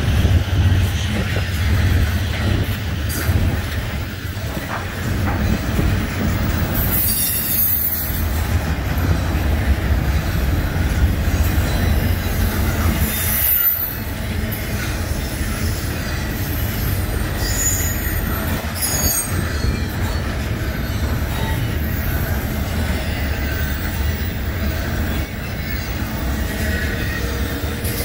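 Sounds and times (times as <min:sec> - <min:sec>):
steel wheels rumbling on rail: 0:00.0 - 0:28.0
high wheel squeals: 0:06.6 - 0:28.0.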